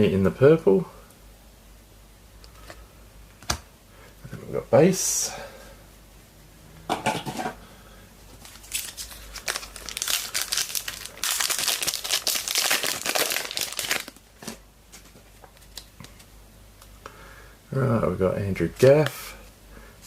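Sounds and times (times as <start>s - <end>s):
wrapper tearing and crinkling: 8.4s - 14.6s.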